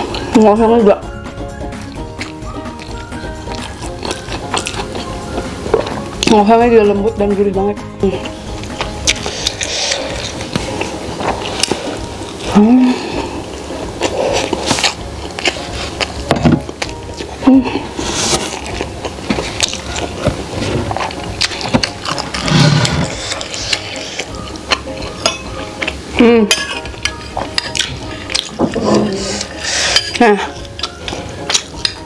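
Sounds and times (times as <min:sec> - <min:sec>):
person chewing food: 0:01.6 - 0:06.3, 0:08.2 - 0:32.0
person humming mmm: 0:11.5 - 0:15.0, 0:17.4 - 0:18.7.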